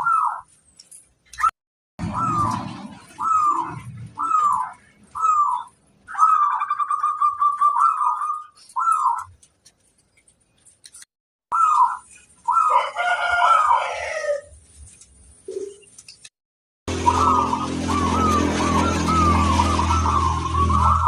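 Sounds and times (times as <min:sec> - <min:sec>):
dove cooing and trilling: 0:00.0 - 0:00.5, 0:02.0 - 0:09.4, 0:11.5 - 0:14.5, 0:16.9 - 0:21.0.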